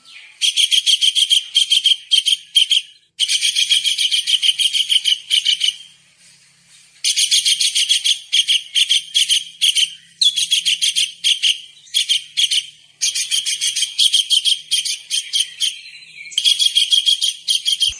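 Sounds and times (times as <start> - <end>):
kingfisher calling: 7.1 - 17.9.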